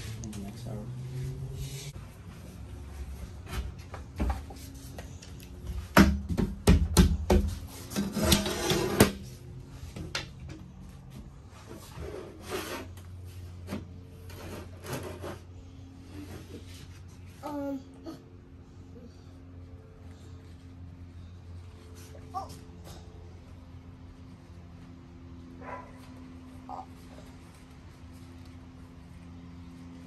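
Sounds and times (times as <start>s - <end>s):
rasping scrape: 7.8s - 9.2s, 11.7s - 13.3s, 14.2s - 17.0s.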